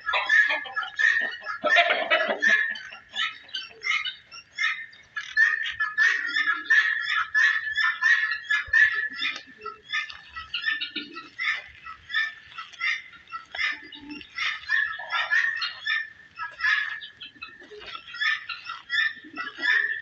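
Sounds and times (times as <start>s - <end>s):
small birds chirping chorus: 0.0s - 20.0s.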